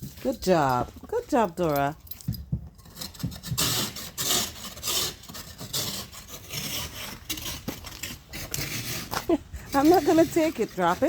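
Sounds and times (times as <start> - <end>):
ice scraper rasping car window: 2.8 - 11.0.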